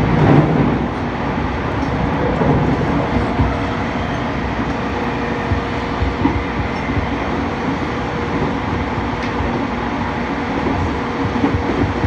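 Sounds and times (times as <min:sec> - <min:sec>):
wheels rumbling on rail: 0:00.0 - 0:12.0.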